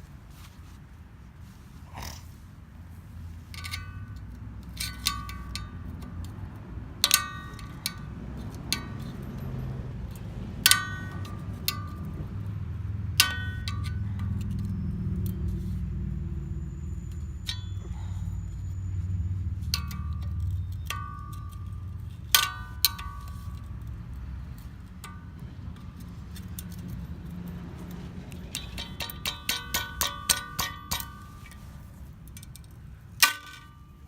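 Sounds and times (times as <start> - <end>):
machete blade clinking on metal: 3.5 - 6.2, 16.5 - 18.9, 24.6 - 34.0.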